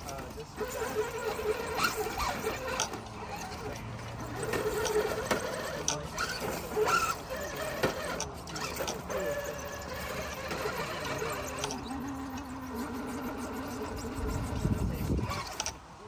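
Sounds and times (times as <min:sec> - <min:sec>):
small electric motor whining: 0:00.0 - 0:16.0.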